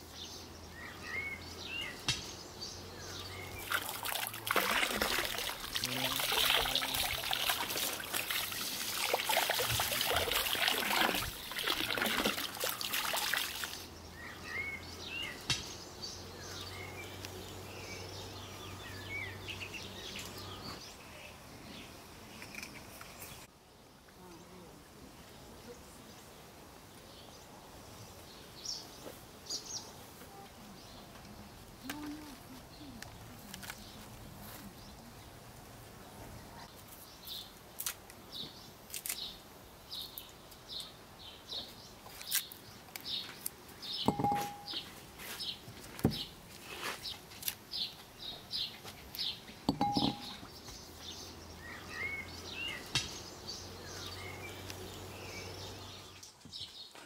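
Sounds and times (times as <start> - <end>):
birds chirping: 0.0 - 23.5, 38.3 - 57.0.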